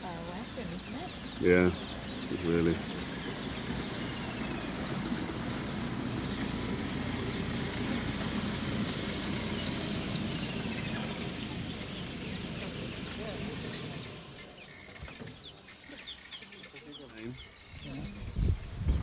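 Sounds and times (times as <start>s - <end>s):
birds chirping and whistling: 0.0s - 19.0s
steady low rumble: 17.7s - 19.0s.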